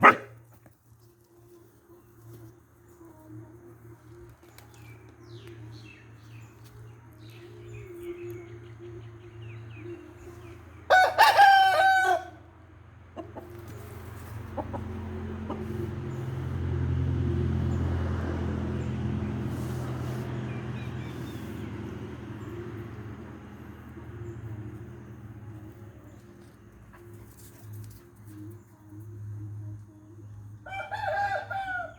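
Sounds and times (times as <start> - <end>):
rooster crowing: 10.9 - 12.4, 30.6 - 31.9.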